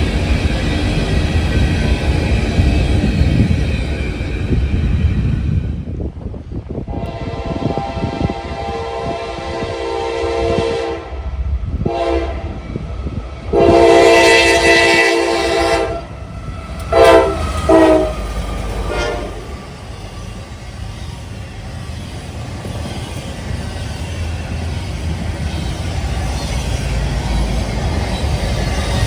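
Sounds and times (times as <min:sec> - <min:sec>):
low train rumble: 0:00.0 - 0:29.0
diesel locomotive horn blasts: 0:06.9 - 0:12.6, 0:13.5 - 0:19.7.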